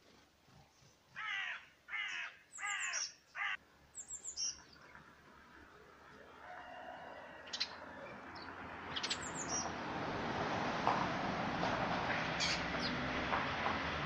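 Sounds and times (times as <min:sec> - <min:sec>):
small birds chirping: 0:00.0 - 0:05.8, 0:07.2 - 0:09.8, 0:12.4 - 0:13.0.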